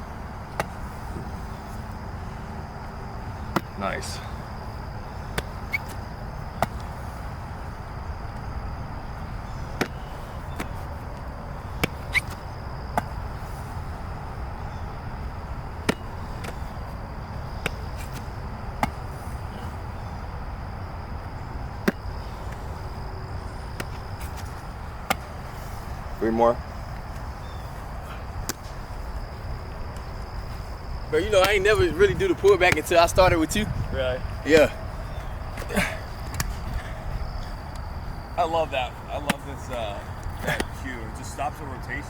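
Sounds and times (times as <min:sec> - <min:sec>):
football slapping into hands: 0:00.5 - 0:00.8, 0:03.4 - 0:03.8, 0:05.3 - 0:07.0, 0:09.8 - 0:13.2, 0:15.8 - 0:16.8, 0:17.5 - 0:19.2, 0:21.7 - 0:22.6, 0:23.7 - 0:25.4, 0:28.4 - 0:28.9, 0:31.2 - 0:33.1, 0:35.5 - 0:36.7, 0:39.2 - 0:40.8.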